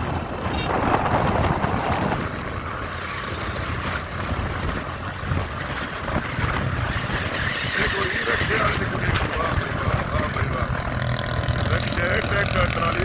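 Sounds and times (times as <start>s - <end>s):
traffic road and engine rumble: 0.0s - 13.0s
wind buffeting microphone: 0.0s - 13.0s.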